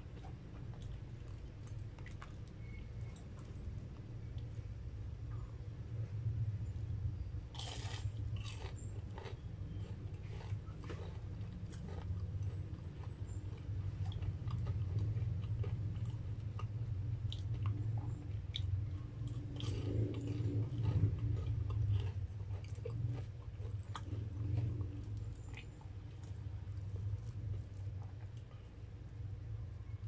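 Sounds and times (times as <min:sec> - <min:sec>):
low steady hum: 0:00.0 - 0:30.0
person chewing: 0:07.5 - 0:28.9.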